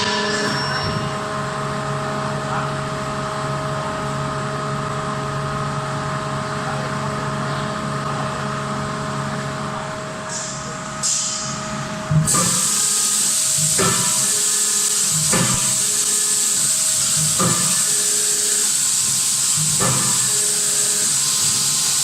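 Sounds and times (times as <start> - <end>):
hydraulic drive humming: 12.1 - 22.0.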